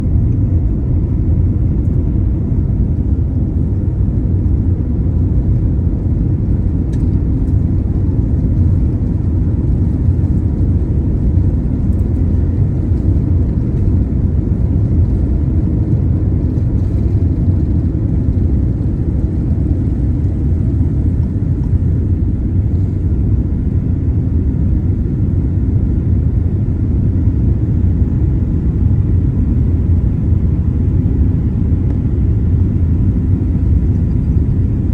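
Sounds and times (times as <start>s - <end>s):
airliner low rumble: 0.0s - 34.9s.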